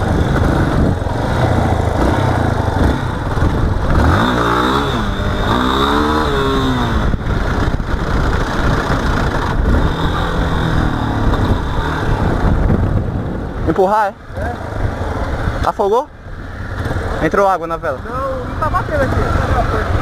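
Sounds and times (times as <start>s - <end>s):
motorcycle engine revving: 0.0s - 15.7s.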